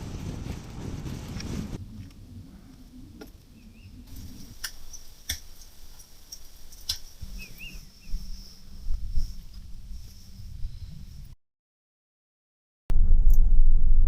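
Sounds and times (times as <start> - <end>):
low outdoor rumble: 0.0 - 11.4
bird chirps: 7.3 - 8.3.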